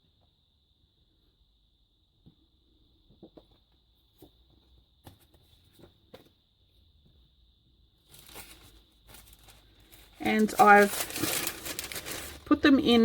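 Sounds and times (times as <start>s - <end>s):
paper cards tapping and rustling: 8.1s - 12.5s.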